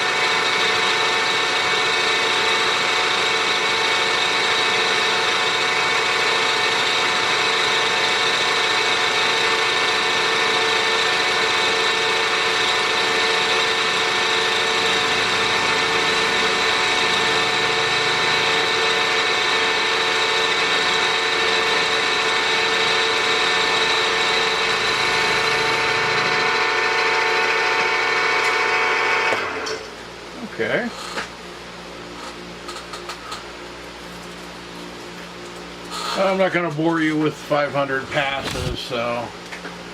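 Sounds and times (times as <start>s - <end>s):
milling machine motor whining: 0.0s - 29.8s.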